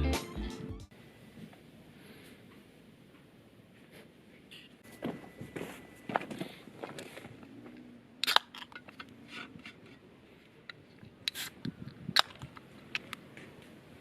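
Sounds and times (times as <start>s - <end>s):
small objects clicking and scraping: 8.2s - 10.0s.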